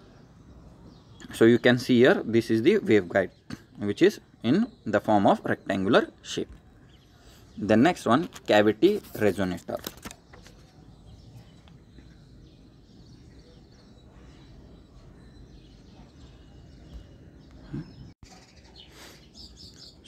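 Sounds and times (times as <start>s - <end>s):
faint bird chirps: 10.1s - 20.0s.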